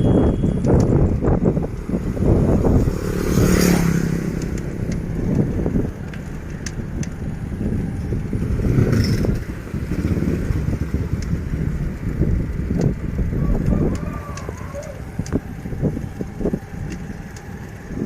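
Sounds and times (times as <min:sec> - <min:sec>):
wind rumbling on microphone: 0:00.0 - 0:18.0
motorcycle engine passing: 0:01.4 - 0:06.6.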